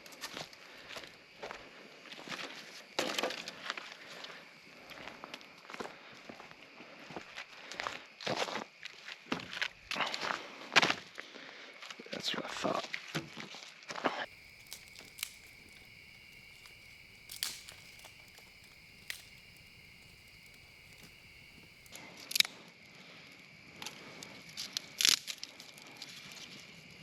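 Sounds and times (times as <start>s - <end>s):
dry sticks cracking and snapping: 14.3s - 21.9s.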